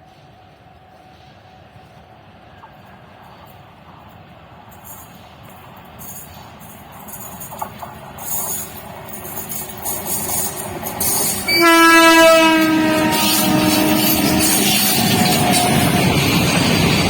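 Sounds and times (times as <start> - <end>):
train running noise: 0.0 - 17.0
locomotive horn blast: 11.4 - 16.1.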